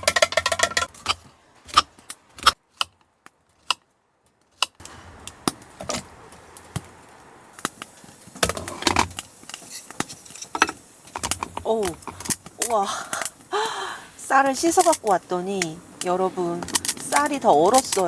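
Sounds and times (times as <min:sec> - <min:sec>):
metal pots and utensils clinking: 0:00.0 - 0:01.2, 0:08.4 - 0:13.3, 0:16.5 - 0:18.0.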